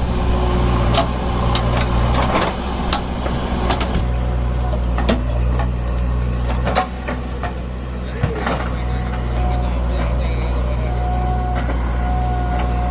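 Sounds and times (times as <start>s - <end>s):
diesel engine running: 0.0s - 12.9s
sharp knocks and clatters: 4.9s - 5.8s, 6.4s - 8.8s.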